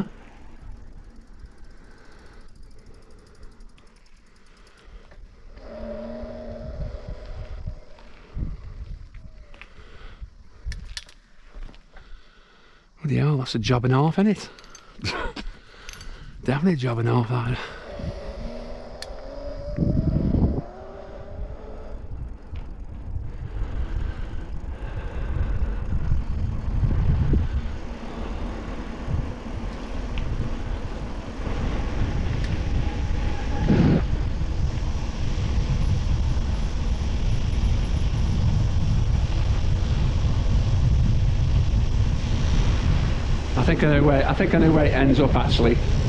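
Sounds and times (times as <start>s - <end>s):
wind buffeting microphone: 5.5s - 11.1s, 15.9s - 46.0s.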